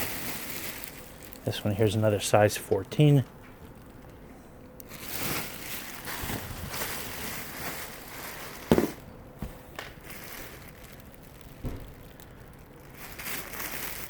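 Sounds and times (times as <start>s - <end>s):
rustling of dresses being handled: 4.9s - 12.1s.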